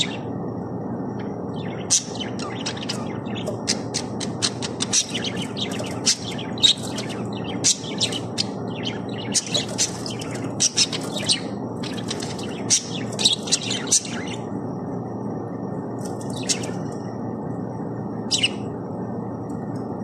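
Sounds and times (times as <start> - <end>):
steady low background hum: 0.0 - 20.0
budgerigars chirping: 1.5 - 14.5, 16.3 - 16.8.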